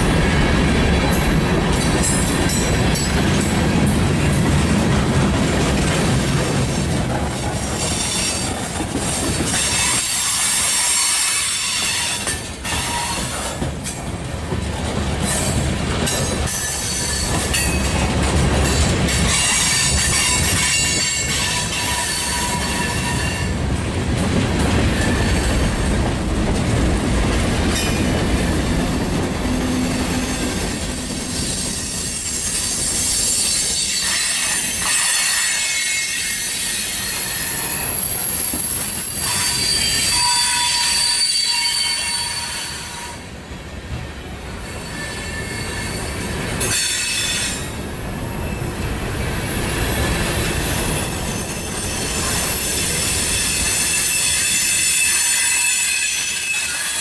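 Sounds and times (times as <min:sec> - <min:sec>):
steel wheels rumbling on rails: 0:00.0 - 0:57.0
high wheel squeals: 0:05.3 - 0:13.5, 0:19.4 - 0:23.7, 0:24.8 - 0:43.2, 0:44.7 - 0:47.7, 0:49.4 - 0:57.0.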